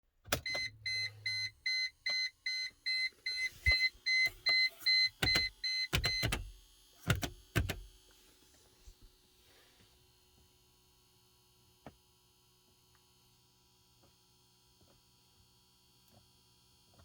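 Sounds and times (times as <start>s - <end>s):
electronic warning beeper: 0.4s - 6.3s.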